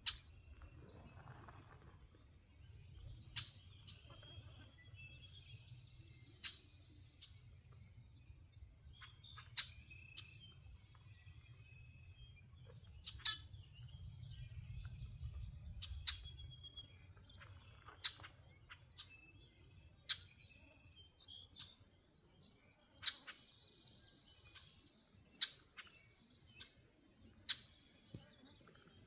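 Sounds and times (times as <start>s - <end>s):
birds chirping and singing: 2.6s - 29.0s
low wind rumble: 13.6s - 17.3s.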